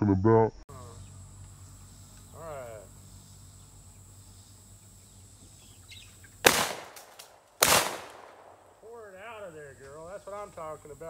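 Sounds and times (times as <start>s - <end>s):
shotgun shots: 6.4s - 8.7s.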